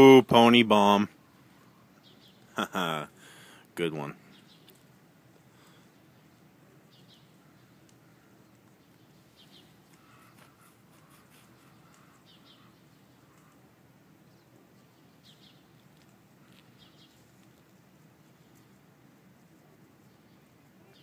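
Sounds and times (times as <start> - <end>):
bird chirping: 1.2 - 2.8, 4.2 - 4.9, 5.6 - 17.4, 20.0 - 21.0.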